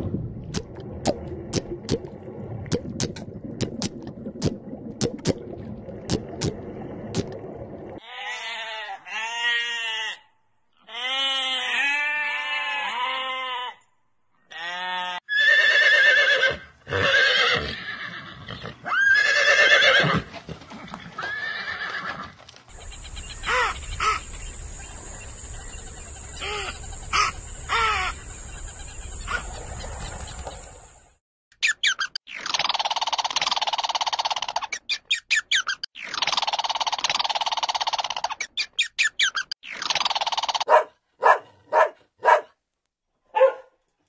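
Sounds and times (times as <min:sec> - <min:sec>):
sheep bleating: 0:08.0 - 0:13.8, 0:14.5 - 0:15.2
horse whinnying: 0:14.5 - 0:22.4.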